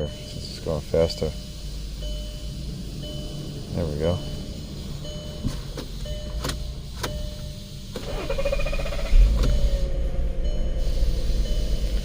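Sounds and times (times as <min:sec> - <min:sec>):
car engine rumbling: 0:00.0 - 0:12.0
starter motor whining: 0:07.9 - 0:10.6.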